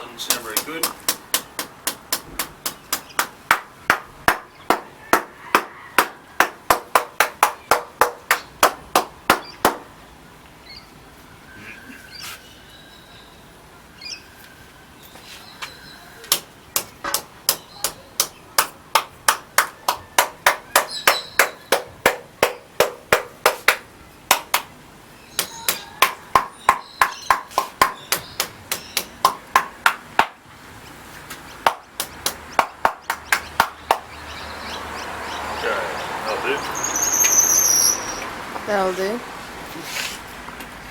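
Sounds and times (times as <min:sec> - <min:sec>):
knocking on concrete: 0:00.2 - 0:09.9, 0:16.3 - 0:24.7, 0:25.4 - 0:30.4, 0:31.3 - 0:34.2.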